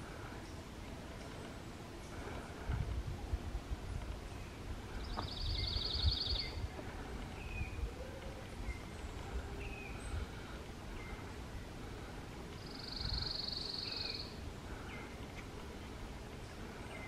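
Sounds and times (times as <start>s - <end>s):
songbird trilling and chirping: 4.3s - 6.7s, 7.3s - 11.2s, 12.6s - 15.2s.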